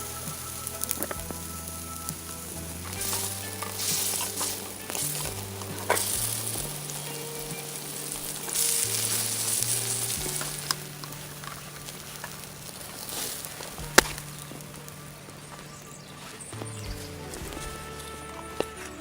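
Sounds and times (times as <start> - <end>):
meat sizzling on a grill: 0.0 - 14.2.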